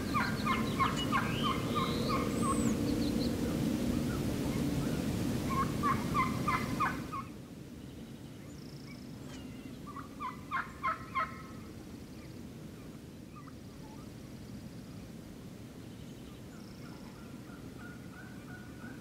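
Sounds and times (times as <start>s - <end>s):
turkey gobbling: 0.0s - 2.7s, 5.5s - 7.3s, 9.9s - 11.7s, 16.8s - 19.0s.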